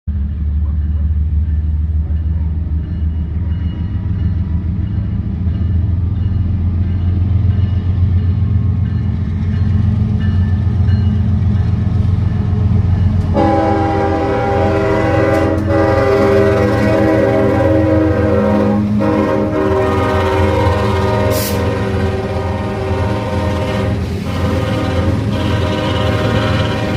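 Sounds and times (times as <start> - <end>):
diesel locomotive rumble: 0.1 - 26.9
multi-tone air horn: 13.3 - 26.9.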